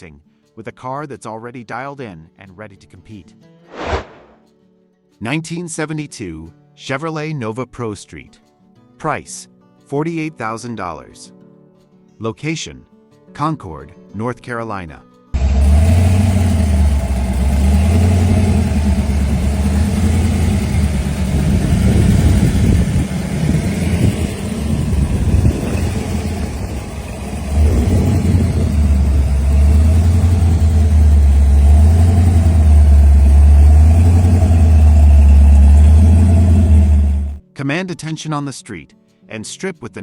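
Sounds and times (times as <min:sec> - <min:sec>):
car engine deep steady note: 0:15.4 - 0:37.4.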